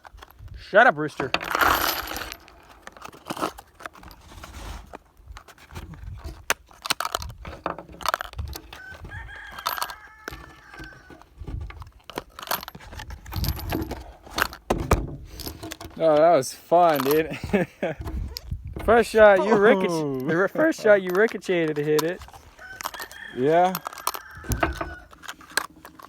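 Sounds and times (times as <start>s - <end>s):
handling clicks and knocks: 0.0s - 26.0s
rooster crowing: 8.7s - 11.2s, 22.5s - 25.2s.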